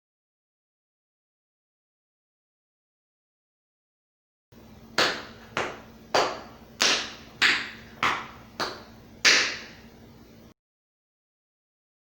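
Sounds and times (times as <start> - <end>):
tap shoes striking floor: 4.9 - 9.8.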